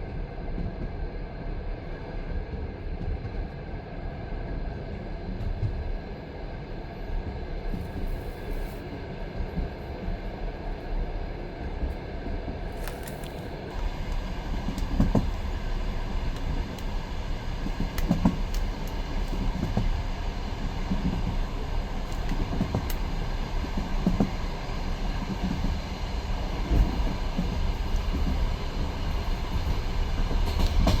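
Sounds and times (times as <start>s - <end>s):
railway carriage rumble: 0.0s - 31.0s
heavy knock of train wheels: 13.7s - 20.0s, 26.6s - 31.0s.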